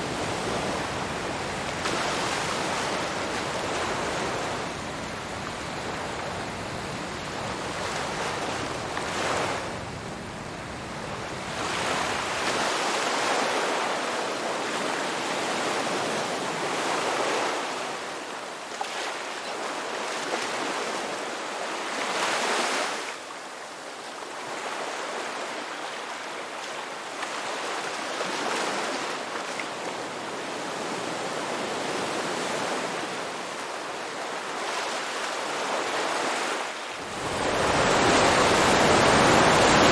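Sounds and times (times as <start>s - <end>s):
ocean waves washing on shore: 0.0s - 23.2s, 24.3s - 39.9s.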